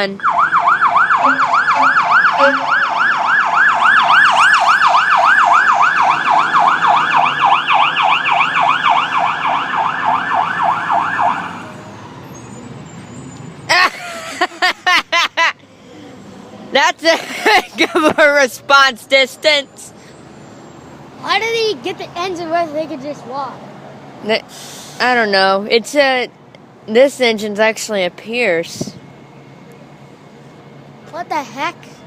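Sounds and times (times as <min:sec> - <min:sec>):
fire engine siren yelping: 0:00.0 - 0:14.7
low traffic hum: 0:00.0 - 0:32.0.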